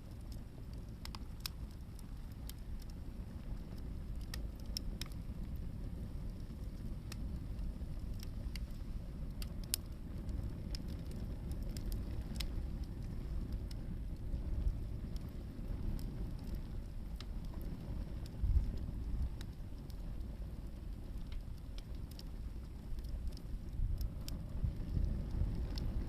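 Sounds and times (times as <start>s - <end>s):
firewood crackling and popping: 0.0s - 26.0s
low fire rumble: 0.0s - 26.0s.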